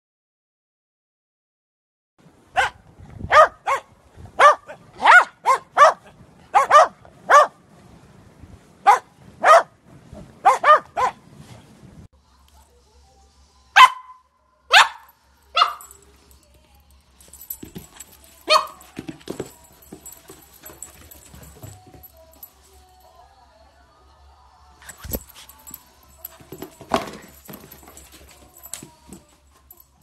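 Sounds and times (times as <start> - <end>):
dogs barking: 2.6 - 7.6, 8.9 - 9.8, 10.4 - 11.2, 13.8 - 16.0, 18.4 - 18.9
puppy barking: 2.6 - 7.6, 8.8 - 9.8, 10.4 - 11.2, 13.8 - 16.0, 18.4 - 18.9.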